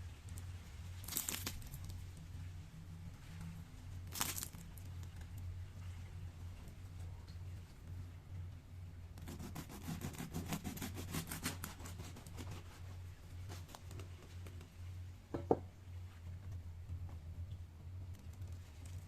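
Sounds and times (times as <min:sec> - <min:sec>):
bread crackling and scraping: 0:00.0 - 0:02.4, 0:03.2 - 0:05.4, 0:09.2 - 0:14.6
low hum: 0:00.0 - 0:09.6.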